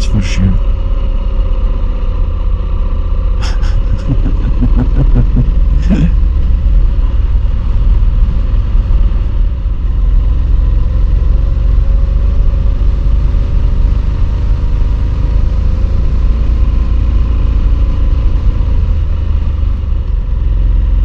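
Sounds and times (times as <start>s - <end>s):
low rumble: 3.4s - 13.0s.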